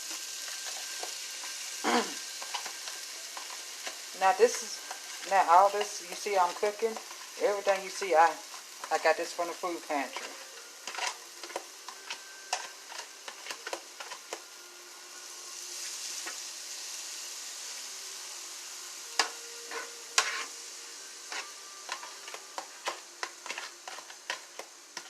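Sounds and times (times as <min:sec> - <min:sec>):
vegetables sizzling in a pan: 0:00.0 - 0:25.0
utensil scraping a pan: 0:00.1 - 0:09.2, 0:09.9 - 0:14.4, 0:19.1 - 0:20.7, 0:21.3 - 0:25.0.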